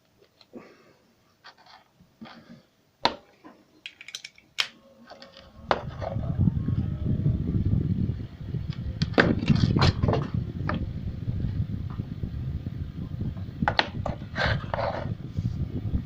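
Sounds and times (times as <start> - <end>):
objects being handled: 1.4 - 6.2
low rumble: 5.5 - 13.6.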